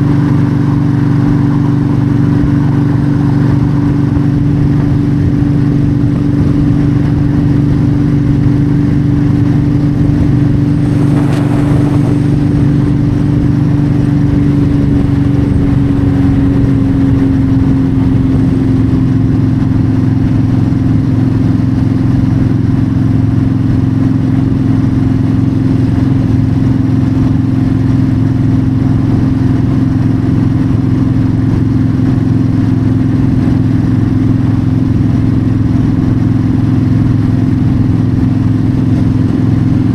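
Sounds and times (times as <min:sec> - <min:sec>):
motorcycle engine cruising: 0:00.0 - 0:39.9
wind and road noise: 0:00.0 - 0:39.9
brief rush of noise: 0:10.6 - 0:14.8.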